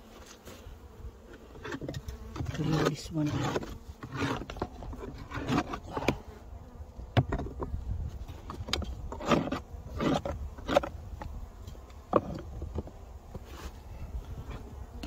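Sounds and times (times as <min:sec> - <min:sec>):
honeybees buzzing: 0:00.0 - 0:15.0
sharp knocks and scrapes: 0:01.3 - 0:06.2, 0:07.1 - 0:13.8.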